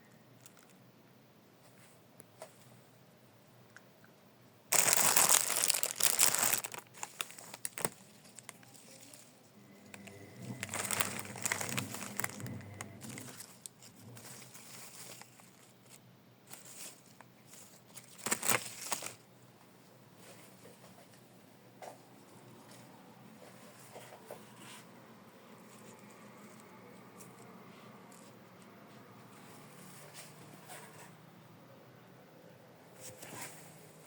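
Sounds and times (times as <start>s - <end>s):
crinkling crumpling: 0.4s - 0.8s, 4.7s - 19.3s.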